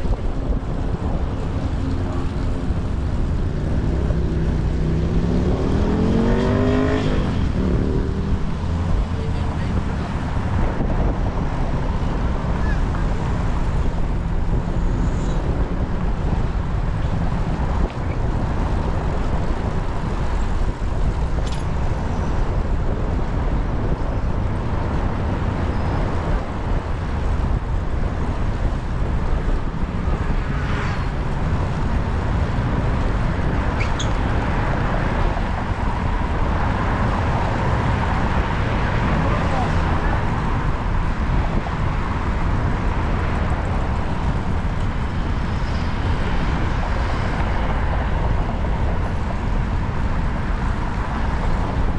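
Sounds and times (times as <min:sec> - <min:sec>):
city traffic: 0:00.0 - 0:51.9
wind and road noise: 0:00.0 - 0:51.9.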